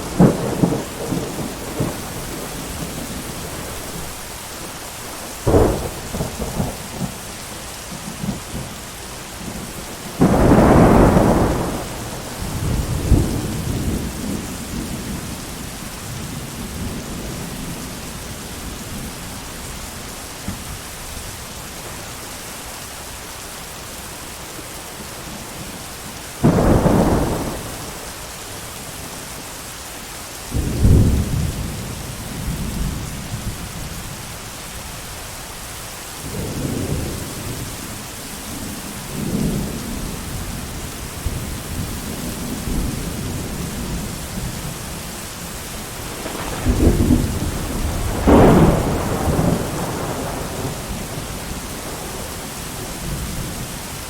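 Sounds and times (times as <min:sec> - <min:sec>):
thunder rolling: 0:00.0 - 0:04.2, 0:05.2 - 0:07.2, 0:09.4 - 0:15.4, 0:26.4 - 0:28.1, 0:46.0 - 0:53.7
steady rain: 0:00.0 - 0:54.0.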